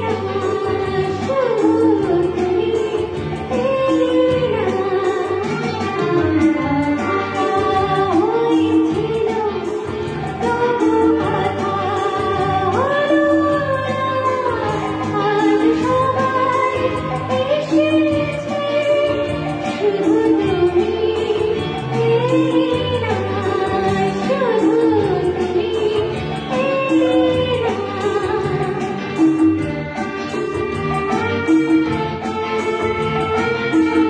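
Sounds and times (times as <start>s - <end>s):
instrumental accompaniment: 0.0s - 34.0s
woman singing: 0.0s - 34.0s.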